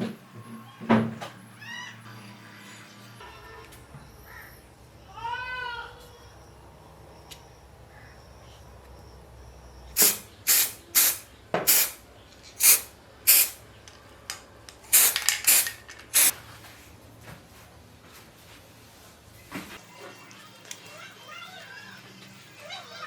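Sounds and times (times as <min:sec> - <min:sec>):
short loud hissing bursts: 0:10.0 - 0:12.0, 0:12.6 - 0:13.6, 0:14.8 - 0:16.3.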